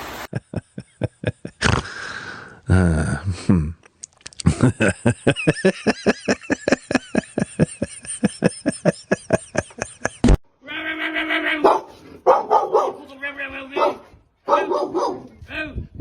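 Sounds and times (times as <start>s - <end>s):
dog held call: 11.6s - 13.1s, 13.8s - 15.4s.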